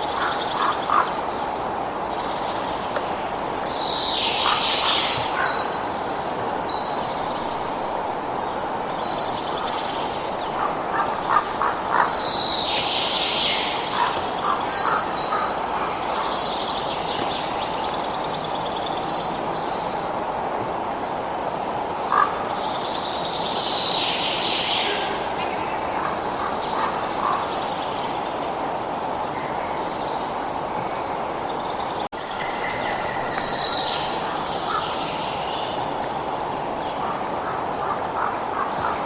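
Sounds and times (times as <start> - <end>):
birds chirping and calling: 3.4 - 7.6, 9.0 - 19.5, 23.6 - 30.3, 31.2 - 35.9.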